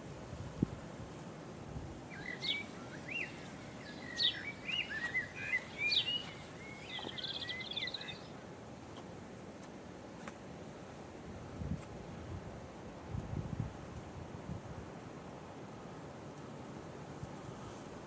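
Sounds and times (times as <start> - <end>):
steady outdoor hiss: 0.0 - 18.0
songbird chirping and warbling: 2.1 - 8.4.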